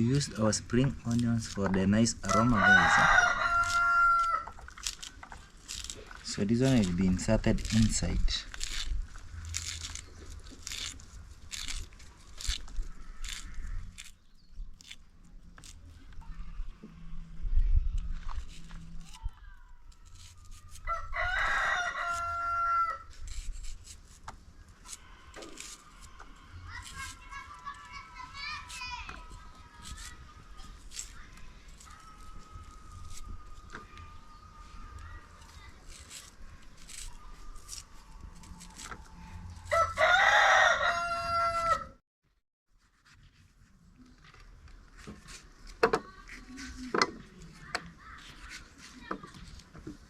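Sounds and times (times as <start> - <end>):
rooster crowing: 2.3 - 4.5, 20.8 - 23.1, 39.0 - 42.0.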